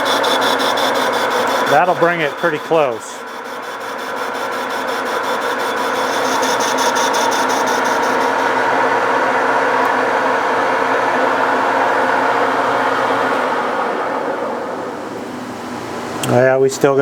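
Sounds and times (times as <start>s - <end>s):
metal lathe cutting: 0.0s - 15.6s.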